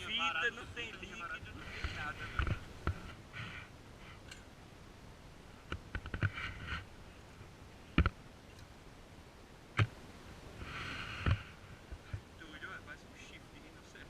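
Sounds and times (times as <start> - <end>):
sharp clicks and knocks: 5.6 - 6.4, 8.0 - 8.7.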